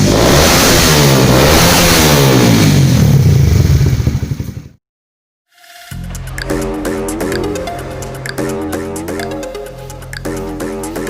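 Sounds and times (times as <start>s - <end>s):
motorcycle engine revving: 0.0s - 4.8s
music: 5.5s - 11.0s.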